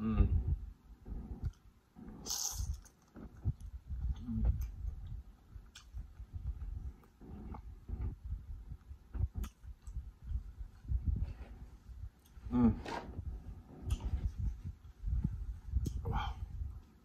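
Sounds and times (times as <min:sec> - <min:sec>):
hissing slurp: 0:02.0 - 0:03.0
chewing with wet clicks: 0:02.4 - 0:06.3, 0:09.3 - 0:10.4.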